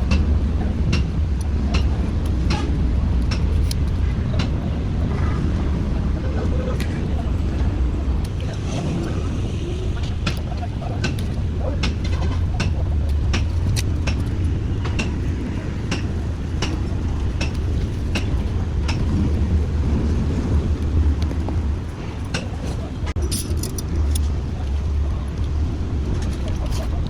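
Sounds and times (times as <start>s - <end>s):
low engine-like rumble: 0.0s - 27.0s.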